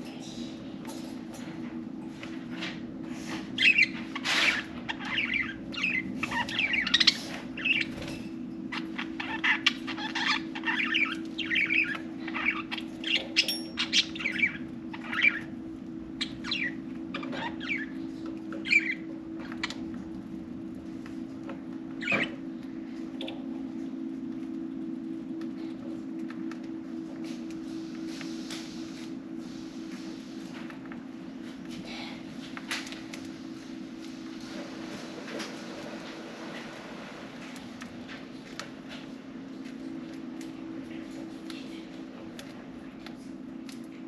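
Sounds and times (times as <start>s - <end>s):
steady low hum: 0.0s - 44.0s
budgerigars chirping and chattering: 3.6s - 8.1s, 8.7s - 15.5s, 16.2s - 17.9s, 18.6s - 19.0s.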